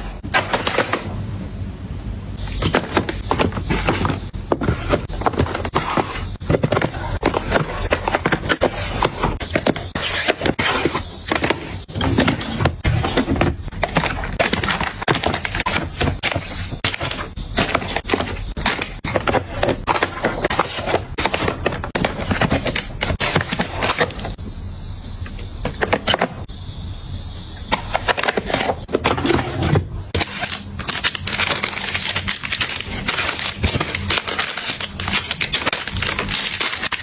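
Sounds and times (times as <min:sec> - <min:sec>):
objects scraping: 0:02.4 - 0:24.4, 0:27.7 - 0:37.0.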